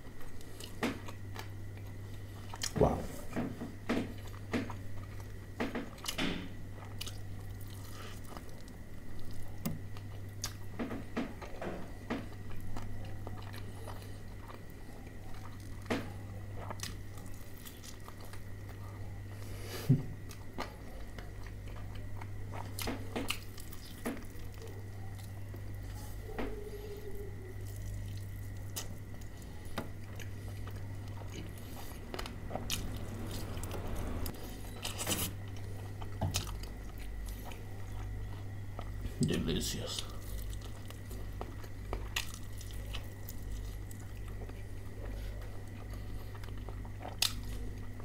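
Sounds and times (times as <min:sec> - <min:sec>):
steady low hum: 0:00.0 - 0:48.0
crunching of crispy food: 0:04.1 - 0:26.8, 0:27.4 - 0:48.0
wet chewing mouth sounds: 0:27.5 - 0:39.0, 0:40.0 - 0:48.0.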